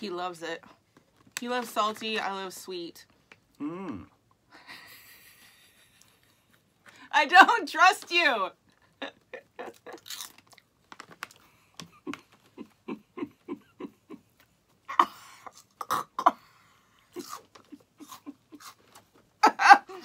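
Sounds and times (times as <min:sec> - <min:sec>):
crunching crisp chip: 0:09.9 - 0:11.4.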